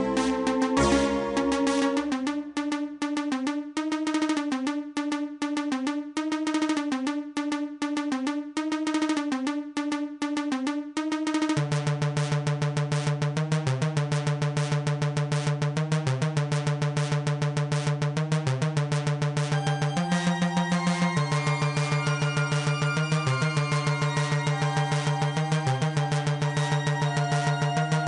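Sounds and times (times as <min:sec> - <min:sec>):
low bass line: 0:00.0 - 0:02.3
choppy synthesizer notes: 0:00.0 - 0:28.0.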